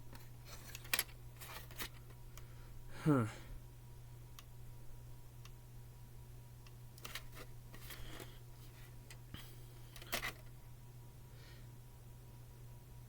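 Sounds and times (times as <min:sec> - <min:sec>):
steady low hum: 0:00.0 - 0:13.0
plastic case clicks and rustles: 0:00.1 - 0:02.1, 0:07.0 - 0:08.3, 0:09.9 - 0:10.5.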